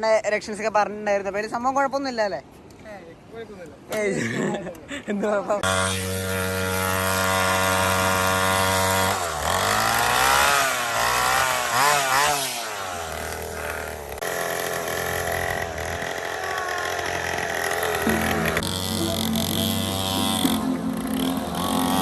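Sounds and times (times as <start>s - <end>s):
dirt bike engine idling and revving: 5.6s - 22.0s.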